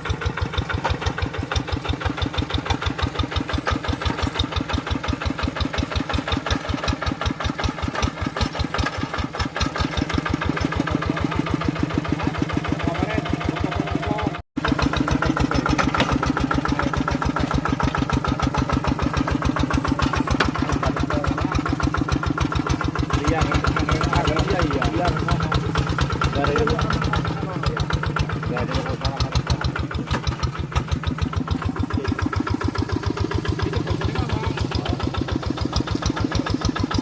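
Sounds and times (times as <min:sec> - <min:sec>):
tractor engine chugging: 0:00.0 - 0:37.0.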